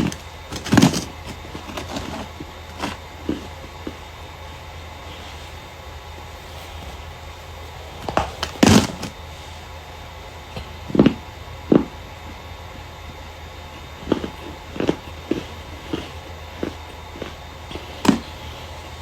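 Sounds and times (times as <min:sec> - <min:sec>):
starch crunching: 0:00.0 - 0:09.8, 0:13.8 - 0:18.8
steady low hum: 0:00.0 - 0:19.0.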